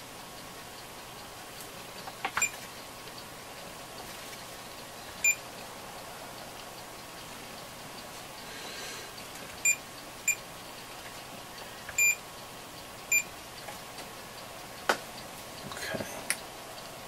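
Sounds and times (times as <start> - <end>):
multimeter beeping: 12.0 - 12.2.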